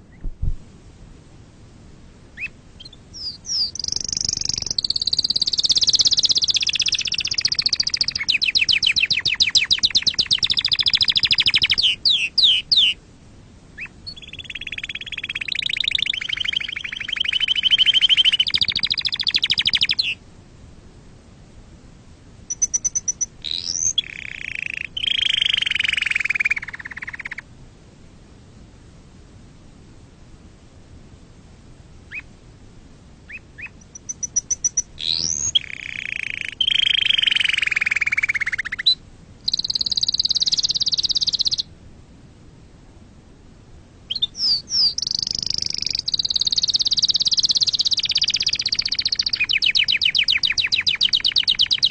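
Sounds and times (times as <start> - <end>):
canary singing trills: 2.4 - 13.0, 13.8 - 20.2, 22.5 - 27.4, 32.1 - 32.3, 33.3 - 41.7, 44.1 - 51.9.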